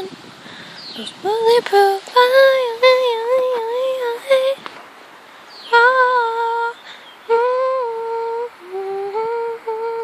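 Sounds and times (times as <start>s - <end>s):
girl humming a slow tune: 5.9s - 10.0s.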